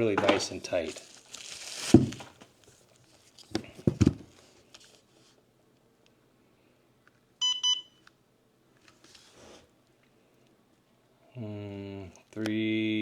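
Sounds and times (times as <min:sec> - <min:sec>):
short electronic beep: 0:07.4 - 0:08.0.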